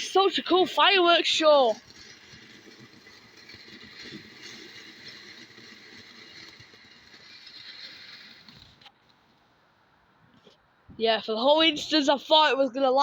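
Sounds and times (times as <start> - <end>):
firework hissing and crackling: 0.0 - 9.3.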